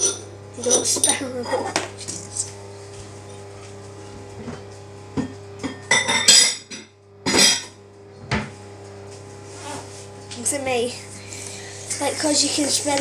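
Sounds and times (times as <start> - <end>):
fidget spinners clattering against bowl: 0.0 - 2.5.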